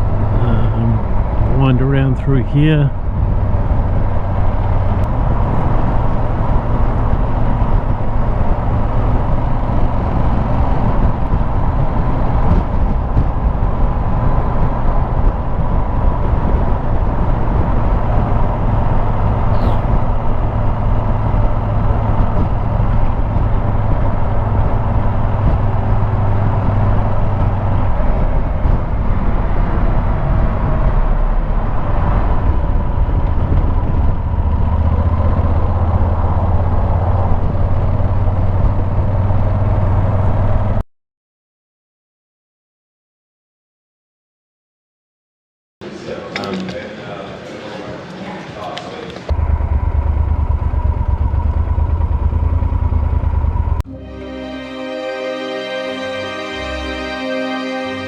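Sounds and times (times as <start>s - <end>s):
wind and road noise: 0.0s - 40.8s, 49.1s - 53.9s
motorcycle engine running: 49.3s - 53.8s.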